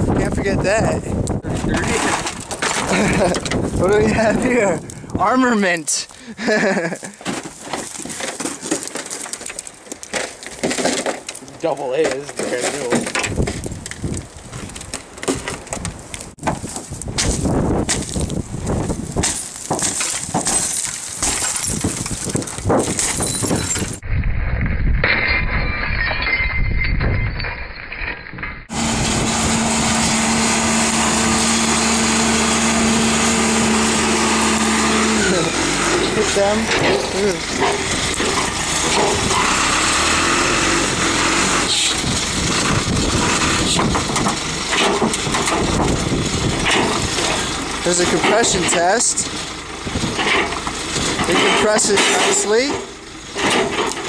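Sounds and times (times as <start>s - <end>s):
car being smashed: 1.5s - 4.7s, 6.4s - 14.1s, 14.7s - 24.0s, 35.2s - 54.0s
diesel engine running hard: 28.7s - 54.0s.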